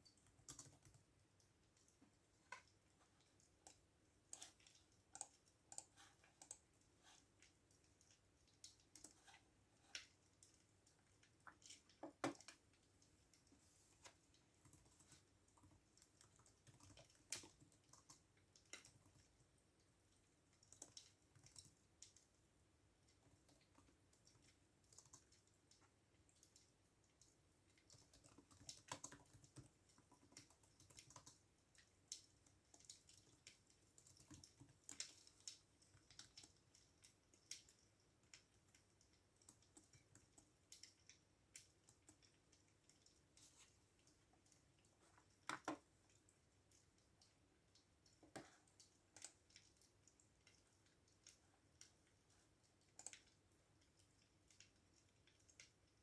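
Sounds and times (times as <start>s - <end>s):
keyboard typing: 0.1s - 1.1s, 24.9s - 25.5s, 27.9s - 31.4s.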